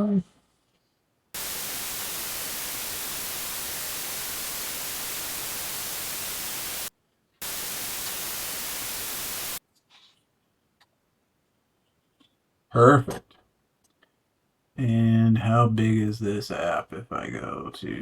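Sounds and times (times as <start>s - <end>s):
white noise hiss: 1.4s - 9.6s.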